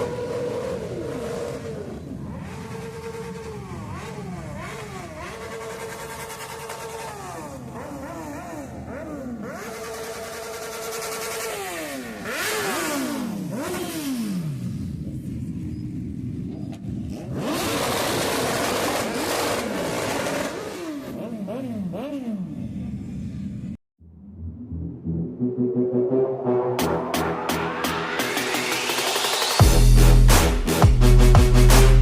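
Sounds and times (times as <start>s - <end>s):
motorcycle engine revving: 0.0s - 23.7s.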